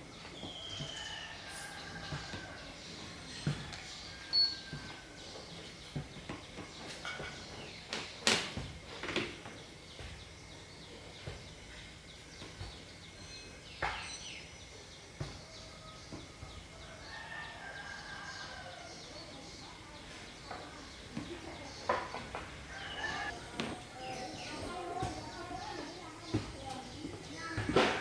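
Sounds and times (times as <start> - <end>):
faint chickens calling: 15.4 - 28.0.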